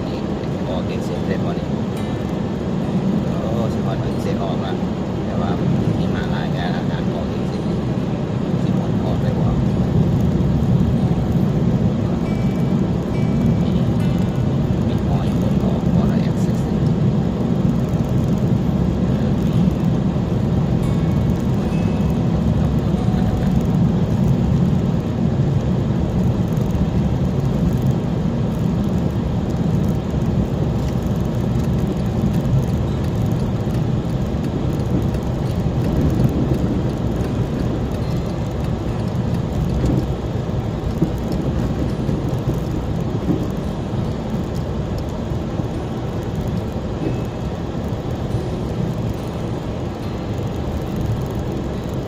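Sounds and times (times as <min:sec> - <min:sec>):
car road and engine rumble: 0:00.0 - 0:52.0.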